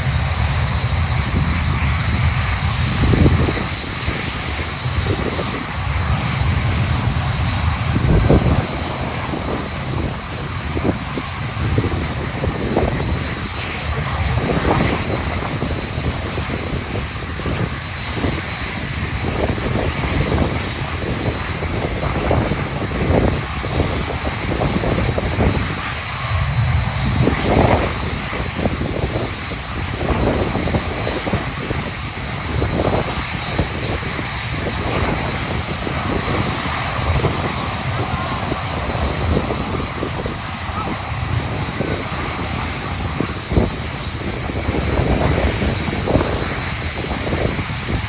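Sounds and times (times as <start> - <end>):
jet engine whine: 0.0 - 48.0.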